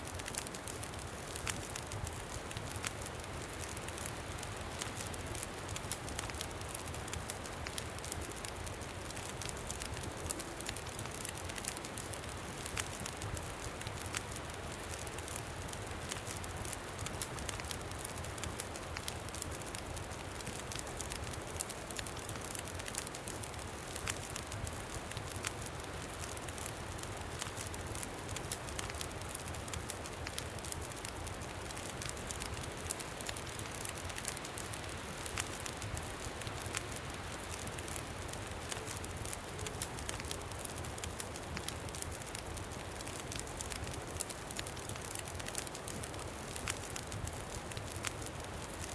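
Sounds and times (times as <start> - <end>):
campfire crackling: 0.0 - 48.9.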